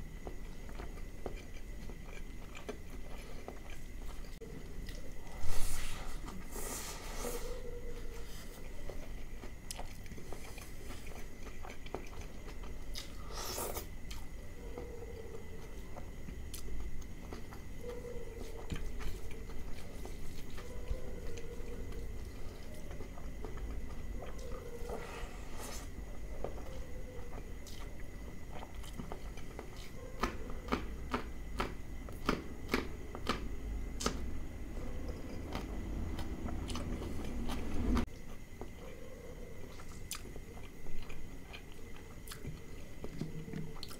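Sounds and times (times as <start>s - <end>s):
person chewing: 0.0s - 39.0s, 39.6s - 43.9s
faint steady high tone: 4.3s - 12.3s.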